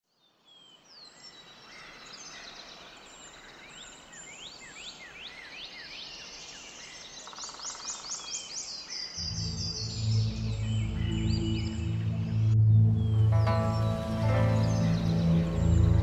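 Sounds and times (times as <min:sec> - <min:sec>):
forest birds chirping: 0:00.0 - 0:16.0
bird trill: 0:07.2 - 0:16.0.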